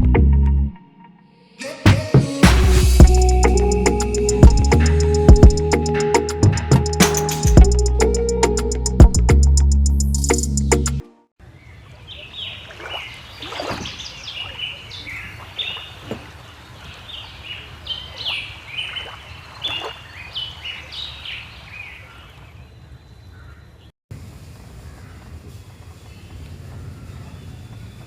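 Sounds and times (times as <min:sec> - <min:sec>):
birds chirping: 0:10.1 - 0:23.9, 0:24.9 - 0:28.0.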